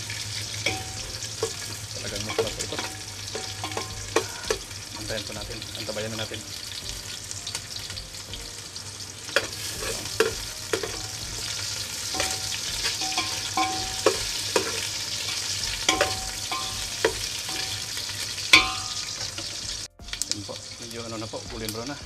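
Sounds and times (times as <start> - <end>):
metal ladle scraping a pot: 0.0 - 5.0, 9.3 - 19.6
food sizzling in hot oil: 0.0 - 22.0.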